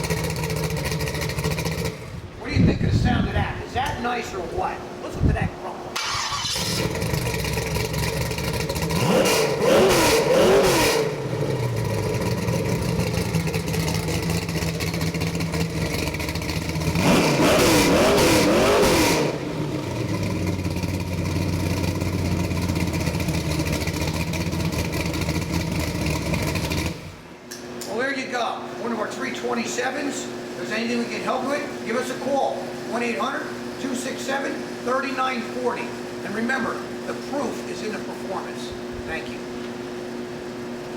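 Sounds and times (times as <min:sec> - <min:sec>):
car engine idling and revving: 0:00.0 - 0:02.3, 0:06.0 - 0:27.4.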